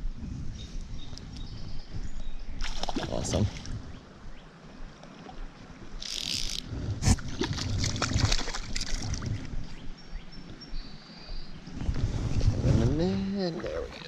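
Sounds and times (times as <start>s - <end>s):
water splashing in a stream: 2.6s - 3.8s, 5.2s - 9.5s.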